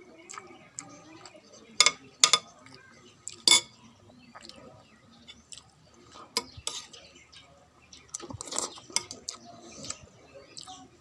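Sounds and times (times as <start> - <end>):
person chewing food: 4.2 - 7.1.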